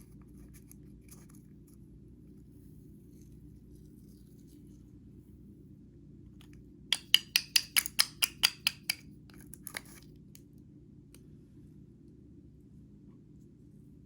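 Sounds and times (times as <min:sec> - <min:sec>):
sharp clicks of hard objects: 0:06.4 - 0:10.0.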